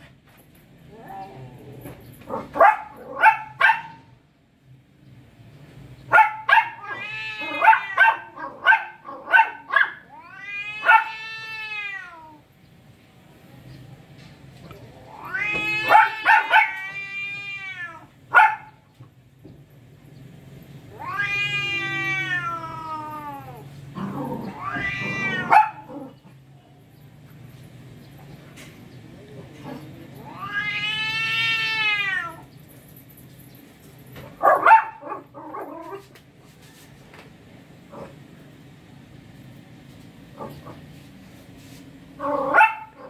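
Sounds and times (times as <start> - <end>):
cats caterwauling: 0.8 - 3.6, 6.4 - 12.5, 14.7 - 18.3, 20.8 - 26.4, 29.5 - 32.5.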